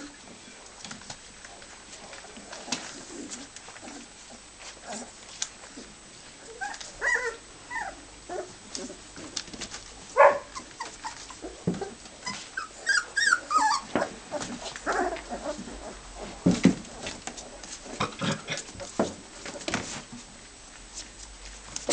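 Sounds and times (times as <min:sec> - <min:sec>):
puppies whining and squeaking: 0:06.3 - 0:09.3, 0:10.4 - 0:16.4.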